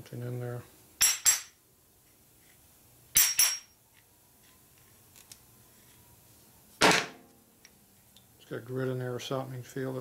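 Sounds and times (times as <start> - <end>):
small steel parts clinking: 3.2 - 3.8.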